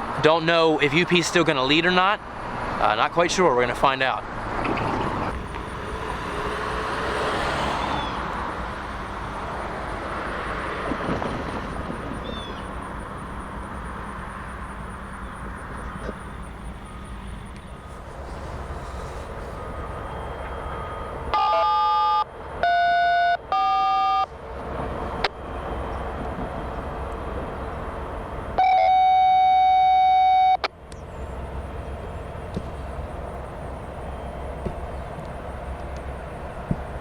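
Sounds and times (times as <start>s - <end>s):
idling locomotives rumble: 0.0s - 37.0s
long steady radio tone: 15.7s - 24.3s, 28.6s - 30.7s.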